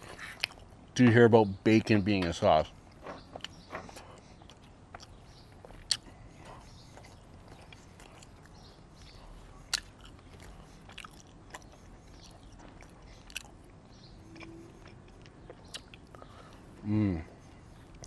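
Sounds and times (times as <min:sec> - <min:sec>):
chewing steak: 0:00.0 - 0:01.0, 0:02.7 - 0:18.0
wet mouth clicks: 0:03.4 - 0:06.2, 0:07.1 - 0:16.6.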